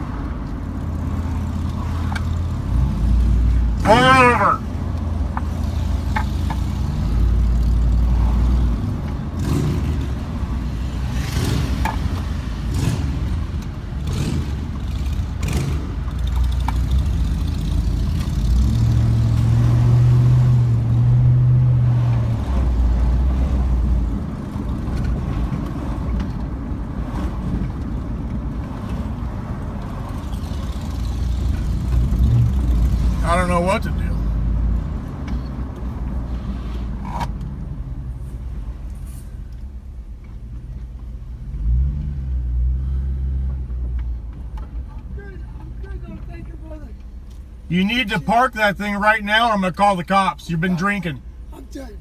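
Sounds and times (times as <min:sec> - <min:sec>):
road noise: 0:00.0 - 0:52.0
vehicle engine running: 0:42.8 - 0:52.0.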